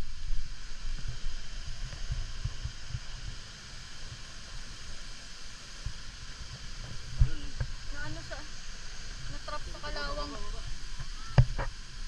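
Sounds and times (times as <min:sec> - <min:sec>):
waterfall rushing: 0:03.2 - 0:12.0.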